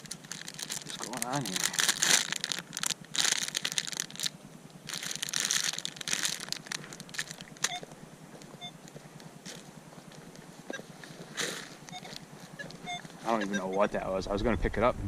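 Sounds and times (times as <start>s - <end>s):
short electronic beep: 12.8s - 13.9s.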